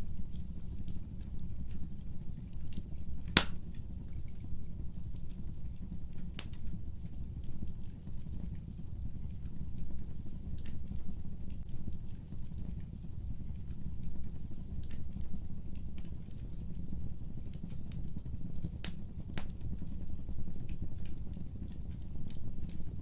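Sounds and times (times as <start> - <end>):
fire crackling and rumbling: 0.0 - 23.0
sharp pop of fire: 3.3 - 3.6.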